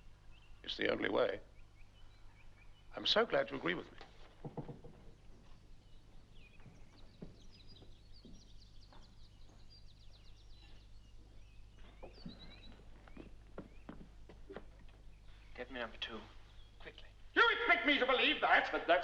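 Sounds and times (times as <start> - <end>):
birds chirping and trilling: 0.0 - 19.0
soft knocks: 4.0 - 5.6.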